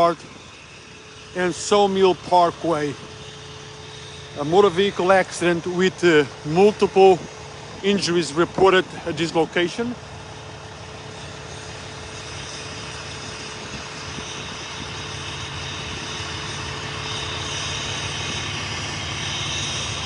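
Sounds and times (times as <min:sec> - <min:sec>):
constant low hum: 0:00.0 - 0:20.0
traffic rumble and hiss: 0:00.0 - 0:20.0.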